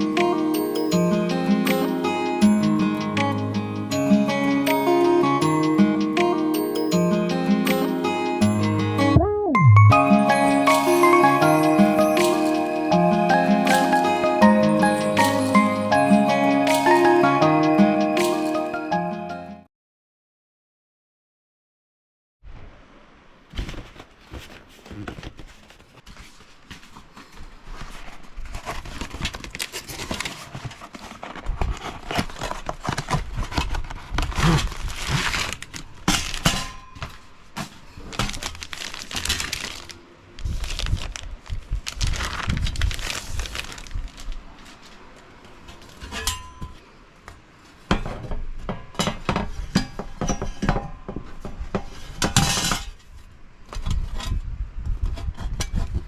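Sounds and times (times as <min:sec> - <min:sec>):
crinkling and rustling: 0:23.4 - 0:56.0.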